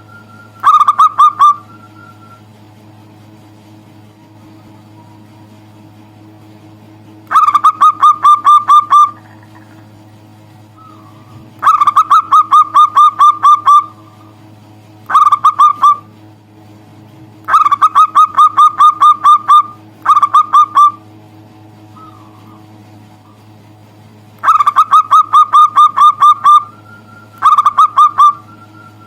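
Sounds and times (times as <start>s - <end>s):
dove calling in clipped notes: 0.0s - 2.6s, 7.2s - 16.2s, 17.4s - 21.2s, 21.8s - 23.6s, 24.4s - 29.0s
faint steady hum: 0.0s - 29.0s.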